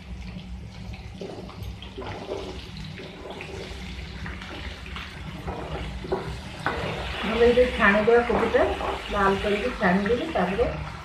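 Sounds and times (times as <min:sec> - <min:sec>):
vegetables sizzling in hot oil: 0:02.2 - 0:11.0.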